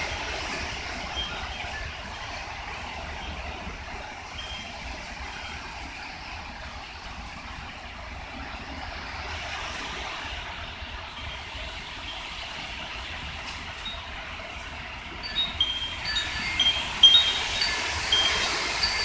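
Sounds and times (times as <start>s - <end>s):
wind buffeting microphone: 0.0s - 19.0s
gusty wind rushing: 14.8s - 19.0s.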